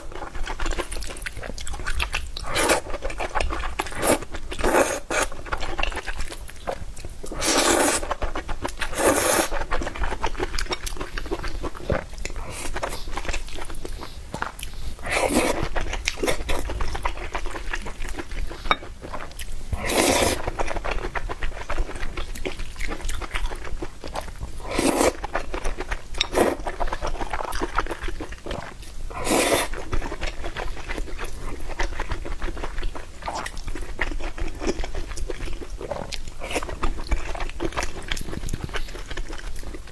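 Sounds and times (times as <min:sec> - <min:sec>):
chewing with crunches: 0:00.0 - 0:39.9
noodle slurps: 0:07.3 - 0:08.1, 0:08.8 - 0:09.6, 0:15.0 - 0:16.6, 0:19.8 - 0:20.6, 0:24.7 - 0:25.2, 0:26.3 - 0:26.6, 0:29.1 - 0:29.8.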